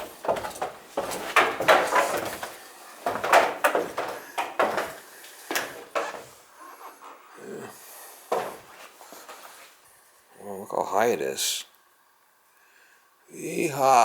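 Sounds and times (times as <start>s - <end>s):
knocks and clunks: 0.0s - 6.4s, 8.3s - 8.7s.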